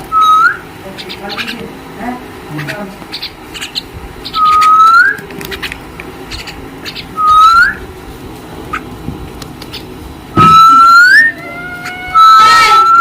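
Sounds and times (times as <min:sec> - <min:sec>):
rising whistles: 0:00.0 - 0:00.7, 0:04.2 - 0:05.2, 0:07.1 - 0:07.9, 0:10.4 - 0:13.0
mynas chirping and clicking: 0:00.0 - 0:01.7, 0:02.6 - 0:07.9, 0:08.6 - 0:13.0.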